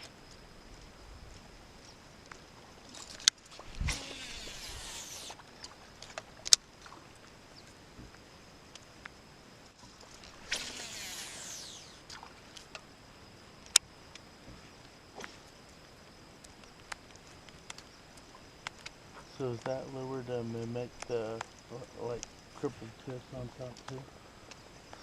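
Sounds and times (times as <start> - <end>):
fishing reel line whirring: 3.2 - 5.4, 10.1 - 12.6.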